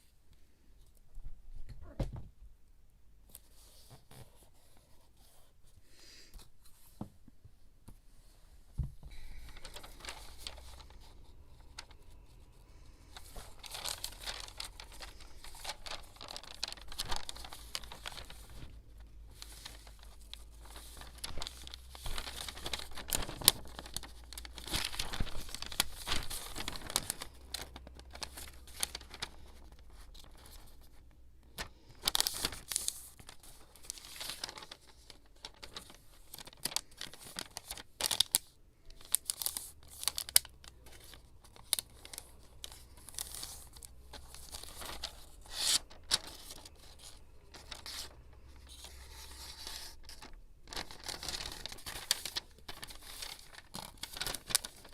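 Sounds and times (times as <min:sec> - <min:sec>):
paper tearing and crinkling: 0:09.3 - 0:12.0, 0:12.8 - 0:30.7, 0:31.6 - 0:54.9.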